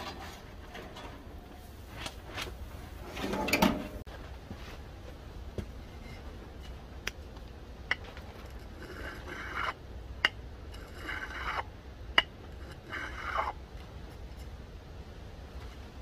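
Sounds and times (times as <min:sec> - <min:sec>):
knife scraping glass bottle: 0:08.5 - 0:09.8, 0:10.7 - 0:11.7, 0:12.5 - 0:13.6.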